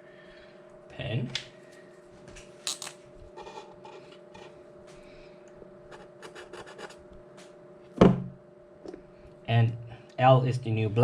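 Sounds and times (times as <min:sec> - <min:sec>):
faint steady hum: 0:00.0 - 0:11.0
pen scratching on a surface: 0:05.9 - 0:07.0.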